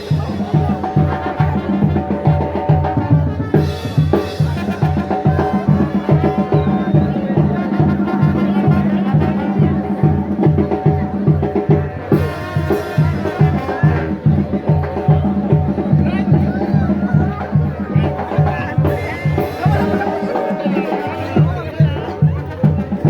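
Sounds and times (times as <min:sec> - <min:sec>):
band music: 0:00.0 - 0:23.0
steady bass drum beat: 0:00.0 - 0:23.0
held horn notes: 0:12.1 - 0:14.5.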